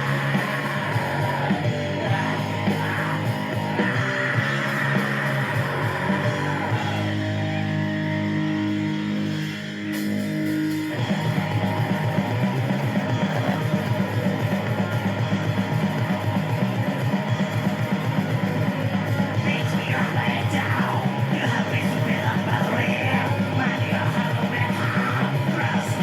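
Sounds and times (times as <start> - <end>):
heavy metal distorted guitar: 0.0 - 26.0.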